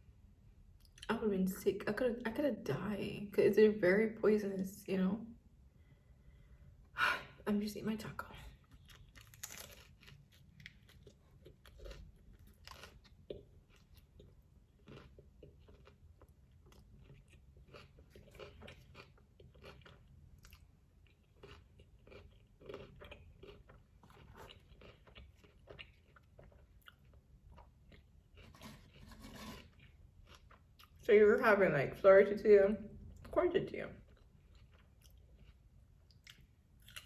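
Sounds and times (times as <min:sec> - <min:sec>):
chewing taco crunches: 0:08.6 - 0:31.1, 0:34.0 - 0:37.0.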